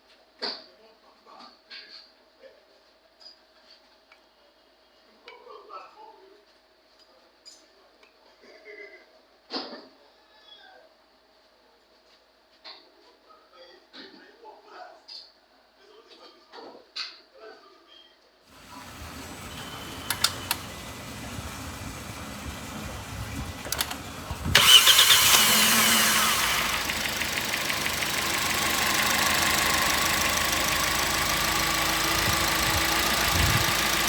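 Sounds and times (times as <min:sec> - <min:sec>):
car engine cranking and idling: 0:18.5 - 0:34.0
clicks: 0:18.6 - 0:34.0.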